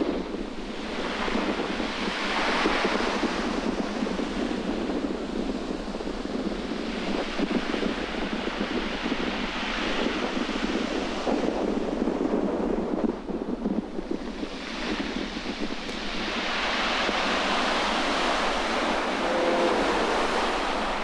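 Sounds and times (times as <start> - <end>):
wind buffeting microphone: 0.0 - 21.0
sea surf hissing: 15.7 - 21.0.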